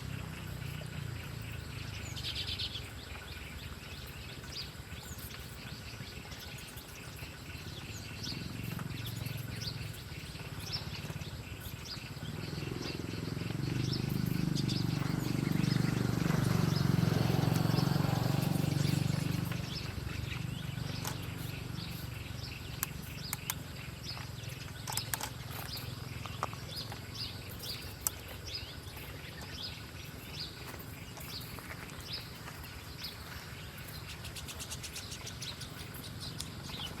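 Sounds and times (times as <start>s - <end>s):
small birds chirping: 0.0s - 37.0s
sharp clicks: 22.7s - 27.0s.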